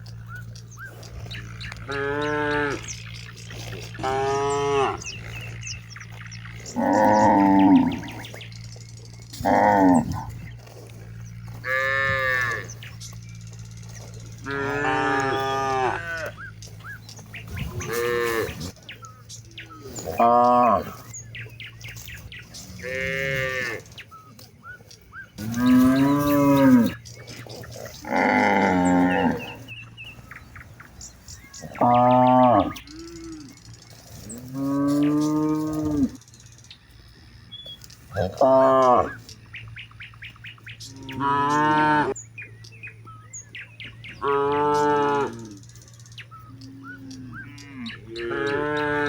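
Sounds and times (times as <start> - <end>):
cattle mooing: 0.1 - 24.1, 25.2 - 36.3, 38.1 - 39.3, 40.7 - 42.2, 44.1 - 45.8, 46.4 - 49.0.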